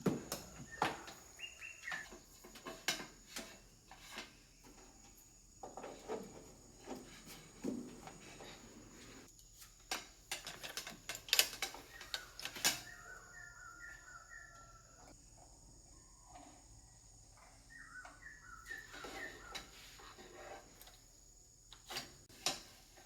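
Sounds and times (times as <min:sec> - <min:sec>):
small bird chirping: 0:00.4 - 0:02.6, 0:11.7 - 0:15.1, 0:15.8 - 0:20.2.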